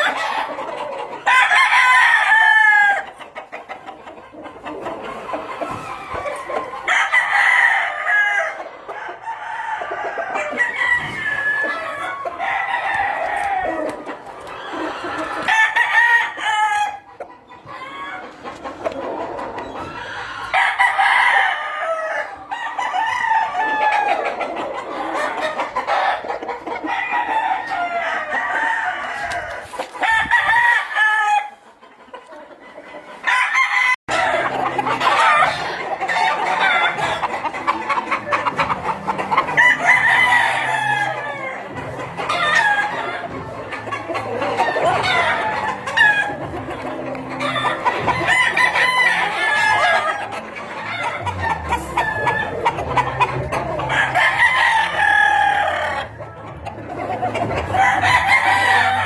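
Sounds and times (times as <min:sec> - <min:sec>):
roosters crowing: 0:00.0 - 0:03.9, 0:04.7 - 0:31.6, 0:33.2 - 0:59.0.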